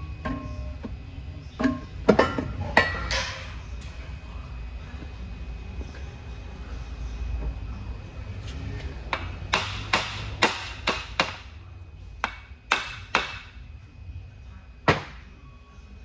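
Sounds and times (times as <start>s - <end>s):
hammer tapping on metal: 9.1s - 11.4s.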